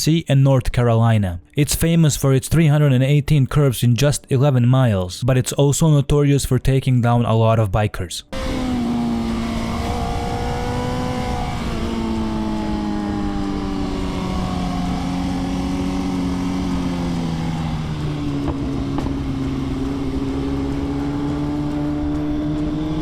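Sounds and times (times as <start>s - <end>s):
motorcycle engine running: 8.3s - 23.0s.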